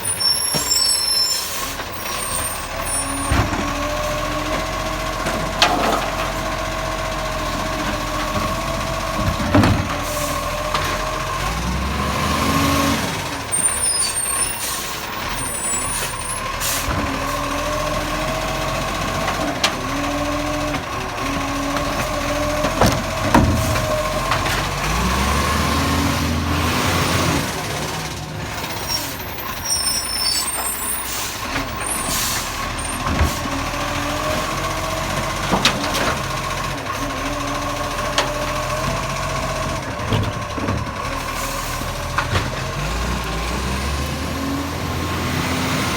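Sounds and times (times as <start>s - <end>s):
garbage truck engine revving: 0.0s - 45.9s
clattering and rattling: 3.2s - 11.2s, 21.7s - 25.0s.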